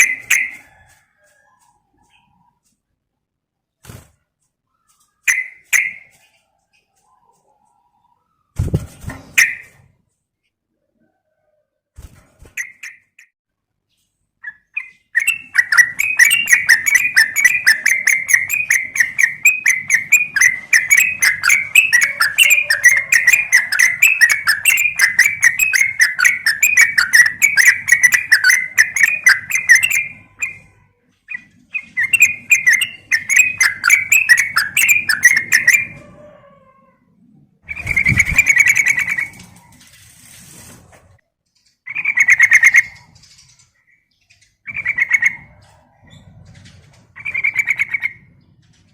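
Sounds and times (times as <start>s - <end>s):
bird chattering: 0.0s - 0.6s, 14.4s - 36.0s, 44.3s - 45.6s, 47.2s - 48.3s.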